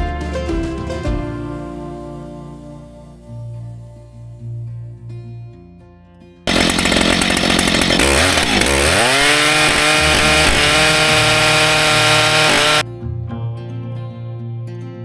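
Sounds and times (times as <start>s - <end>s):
chainsaw revving: 6.5s - 12.8s.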